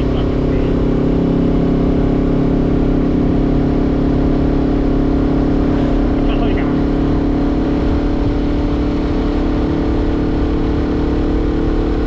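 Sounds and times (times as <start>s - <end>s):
motorcycle engine running: 0.0s - 12.0s
wind rumble on microphone: 6.5s - 11.5s.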